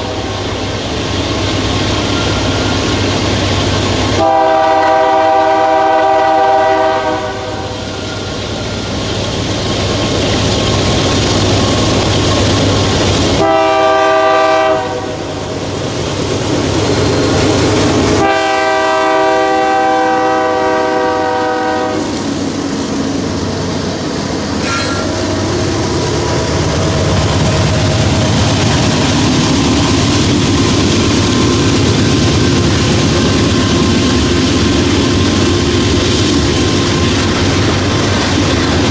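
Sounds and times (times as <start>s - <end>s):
train rumble and wheel clatter: 0.0s - 38.9s
locomotive air horn blasts: 4.2s - 7.8s, 13.4s - 15.3s, 18.2s - 22.2s.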